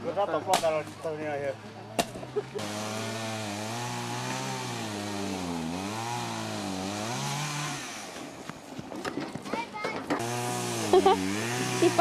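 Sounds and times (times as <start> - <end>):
small engine running: 2.6 - 8.4, 10.2 - 12.0.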